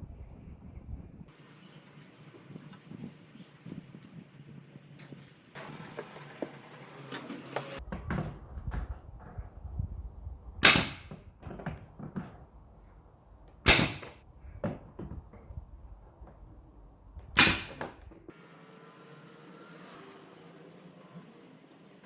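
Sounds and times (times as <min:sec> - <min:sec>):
loud sharp knocks: 0:10.6 - 0:11.2, 0:13.7 - 0:14.2
handling clicks and knocks: 0:10.6 - 0:12.5, 0:13.6 - 0:15.5.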